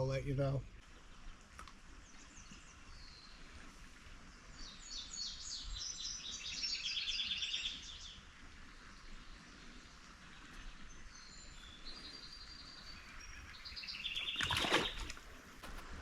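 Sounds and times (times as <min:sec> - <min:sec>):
birds singing and chirping: 0:04.5 - 0:08.2, 0:10.5 - 0:15.3.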